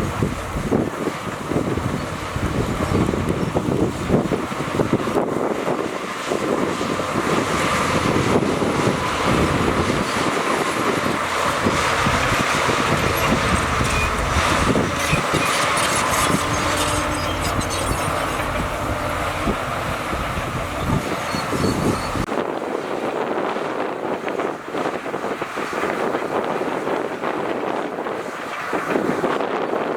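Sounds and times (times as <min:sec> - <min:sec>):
diesel machinery engine rumble: 0:00.0 - 0:22.3
rattling: 0:11.3 - 0:22.3
faint metallic squeaks and clicks: 0:12.9 - 0:19.7, 0:20.6 - 0:22.3.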